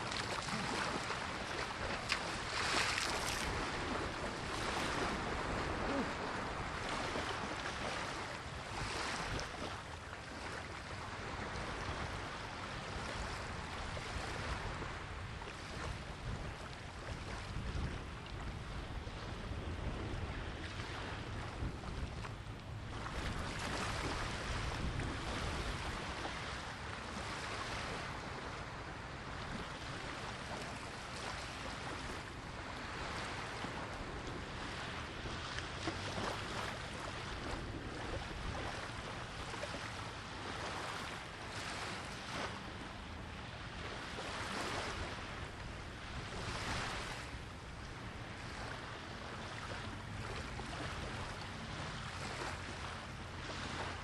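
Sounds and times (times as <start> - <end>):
sea waves breaking on shore: 0.0 - 54.0
wind buffeting microphone: 12.9 - 26.6.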